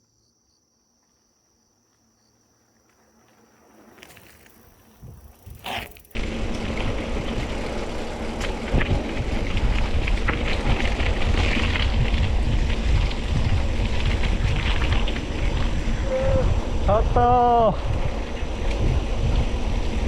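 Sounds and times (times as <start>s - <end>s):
gravel and bike clicks and rattles: 1.0s - 20.0s
tyres rolling on gravel: 2.8s - 16.8s
wind on microphone: 5.0s - 20.0s.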